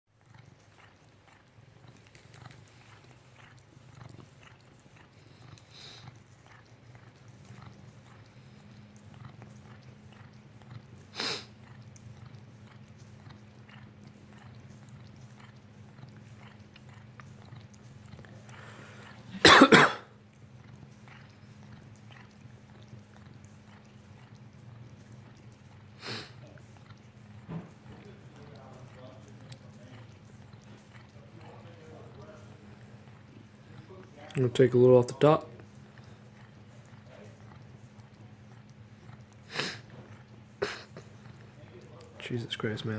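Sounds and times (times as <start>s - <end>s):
cat licking: 0.1s - 42.9s
steady low hum: 0.3s - 42.9s
cough-like burst: 19.3s - 20.2s, 40.6s - 41.1s.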